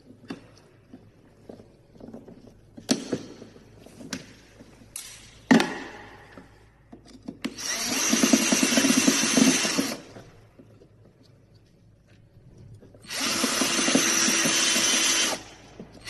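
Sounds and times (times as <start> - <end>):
power drill running: 7.5 - 10.2, 13.0 - 15.7.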